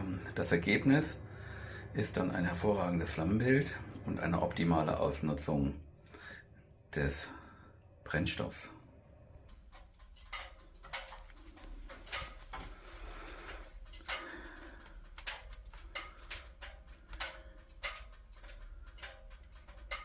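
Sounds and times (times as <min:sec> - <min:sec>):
firewood crackling and popping: 0:09.2 - 0:20.0.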